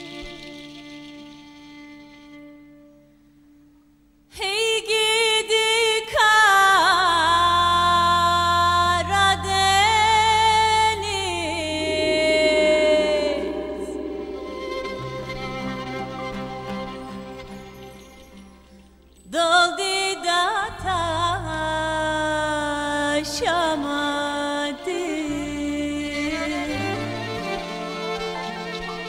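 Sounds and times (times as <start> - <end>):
slow melody with sliding notes: 8.0 - 19.5
steady low drone: 9.4 - 19.0.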